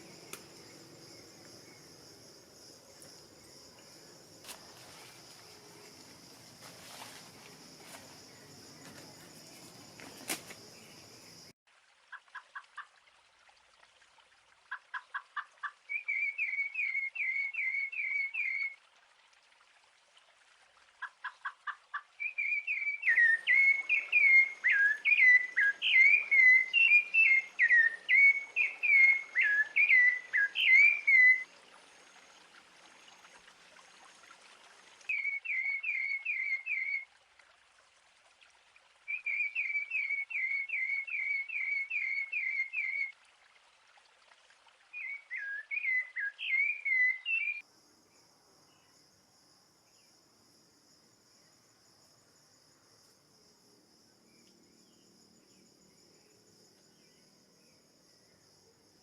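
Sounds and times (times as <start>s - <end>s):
songbird chirping: 0.0s - 11.5s, 15.8s - 18.8s, 22.2s - 31.5s, 35.1s - 37.1s, 39.1s - 43.1s, 44.9s - 59.0s.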